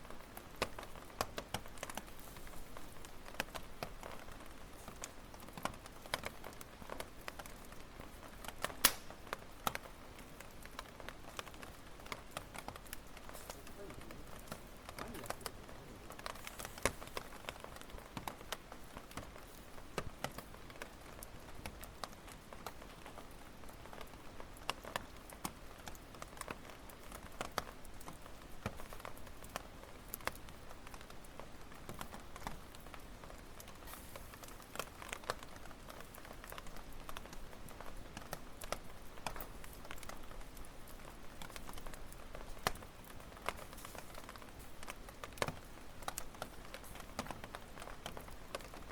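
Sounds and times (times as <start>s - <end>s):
campfire crackling and popping: 0.0s - 48.9s
low hiss of flames: 0.1s - 7.2s, 8.0s - 21.6s, 33.5s - 48.6s.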